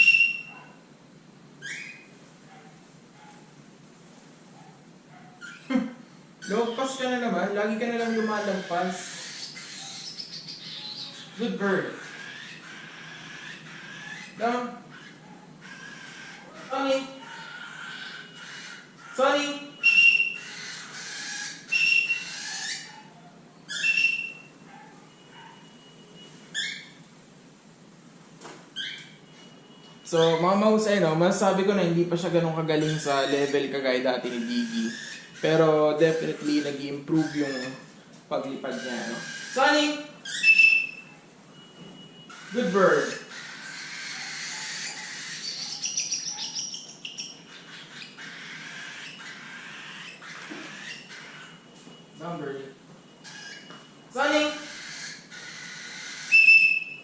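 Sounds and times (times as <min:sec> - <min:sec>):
cockatiel whistling calls: 0:00.0 - 0:00.7, 0:01.6 - 0:02.1, 0:12.0 - 0:23.1, 0:23.7 - 0:27.0, 0:28.8 - 0:29.2, 0:38.7 - 0:52.3, 0:53.2 - 0:57.0
parrot chirping: 0:00.0 - 0:00.8, 0:01.5 - 0:03.5, 0:04.6 - 0:27.0, 0:28.7 - 0:57.0.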